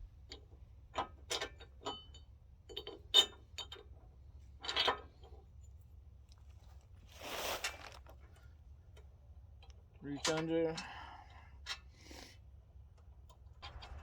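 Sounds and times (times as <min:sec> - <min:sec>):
metal bolts clinking on steel: 0:00.3 - 0:03.9, 0:04.6 - 0:05.1, 0:10.2 - 0:10.8
metallic clatter: 0:13.6 - 0:14.0.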